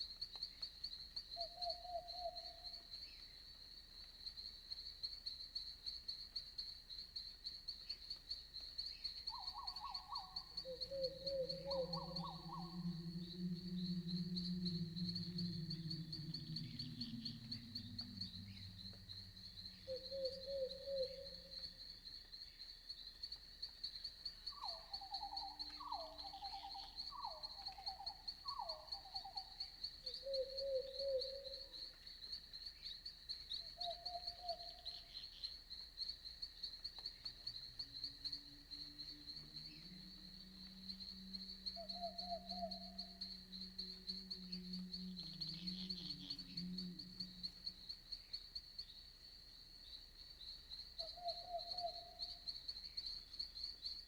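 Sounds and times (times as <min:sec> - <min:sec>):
crickets trilling: 0:00.0 - 0:54.0
night animals trilled calls: 0:09.3 - 0:21.8, 0:24.6 - 0:31.8, 0:38.3 - 0:48.2, 0:51.0 - 0:52.5
low hum: 0:10.7 - 0:21.6, 0:42.7 - 0:47.8.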